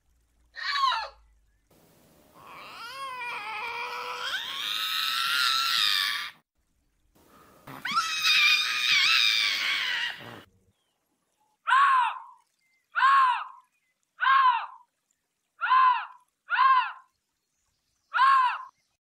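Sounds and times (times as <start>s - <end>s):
lynx calling: 7.6s - 10.5s.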